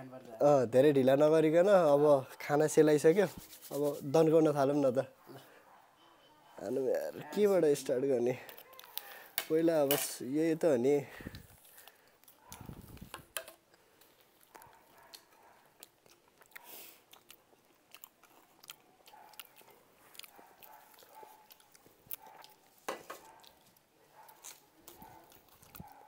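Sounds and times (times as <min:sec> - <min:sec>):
chewing and crunching food: 0:08.3 - 0:09.5, 0:11.1 - 0:26.0
plates and foil trays clattering: 0:09.1 - 0:10.3, 0:22.8 - 0:23.3.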